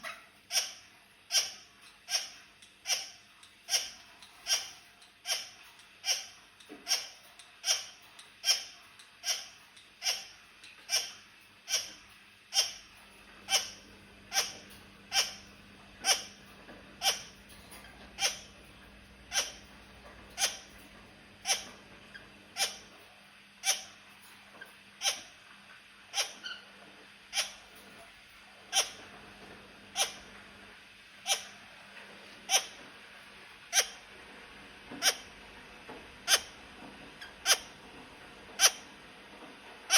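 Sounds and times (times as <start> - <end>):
parakeet calling: 0.0 - 12.9, 13.5 - 19.7, 20.3 - 20.8, 21.4 - 23.0, 23.6 - 24.0, 25.0 - 25.4, 26.1 - 26.7, 27.3 - 27.7, 28.7 - 29.1, 29.9 - 30.3, 31.2 - 31.6, 32.4 - 32.8, 33.7 - 34.0, 35.0 - 35.3, 36.2 - 36.6, 37.2 - 37.8, 38.6 - 38.9.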